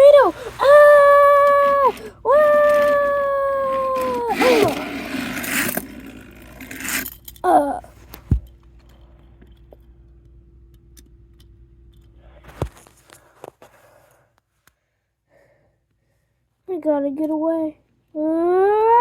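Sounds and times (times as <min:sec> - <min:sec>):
toy trains clattering: 0:00.0 - 0:07.6
faint steady hum: 0:00.0 - 0:19.0.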